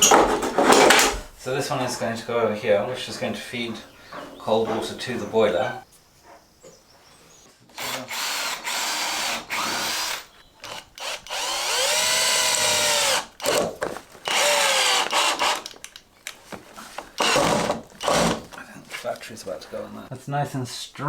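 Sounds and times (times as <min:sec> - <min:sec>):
cordless drill motor whine: 0:07.8 - 0:15.8, 0:17.2 - 0:18.5.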